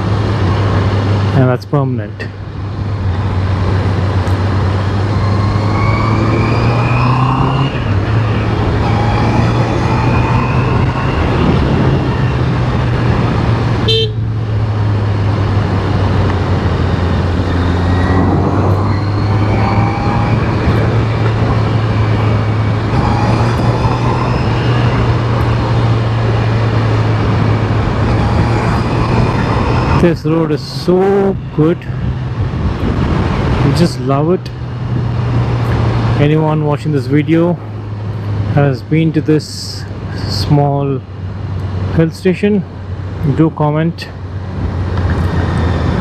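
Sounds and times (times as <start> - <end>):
motorcycle engine revving: 3.1 - 36.6.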